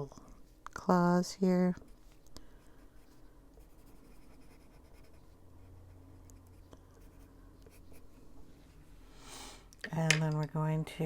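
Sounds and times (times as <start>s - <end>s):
pencil scratching on paper: 2.6s - 8.2s.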